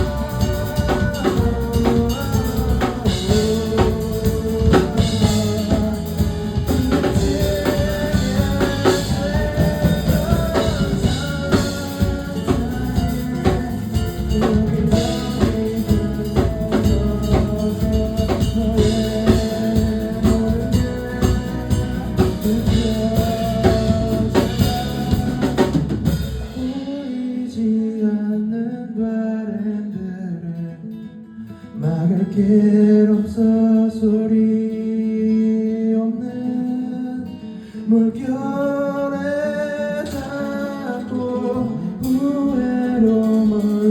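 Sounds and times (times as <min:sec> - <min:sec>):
band playing a song: 0:00.0 - 0:27.1.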